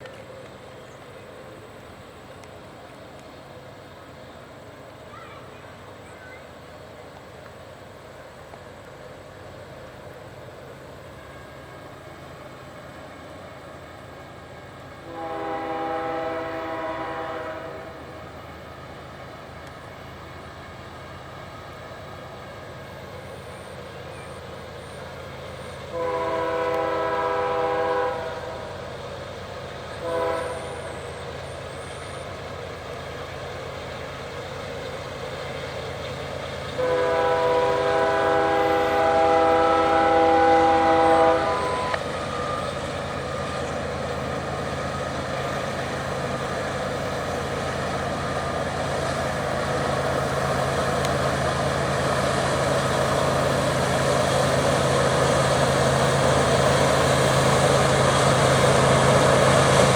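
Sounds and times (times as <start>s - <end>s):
diesel locomotive engines: 0.0s - 59.9s
train rumble: 0.0s - 59.9s
train horn blasts: 15.0s - 18.3s, 25.8s - 28.8s, 30.0s - 31.0s, 36.8s - 42.6s.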